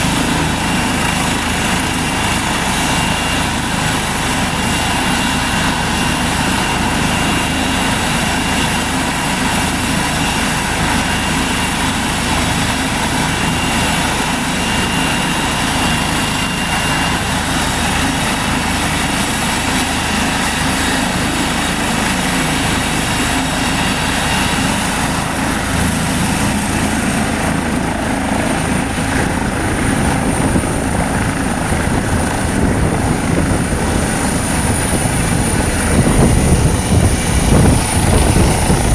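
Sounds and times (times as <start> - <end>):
helicopter rotor and turbine: 0.0 - 38.9
high turbine whine: 0.0 - 38.9.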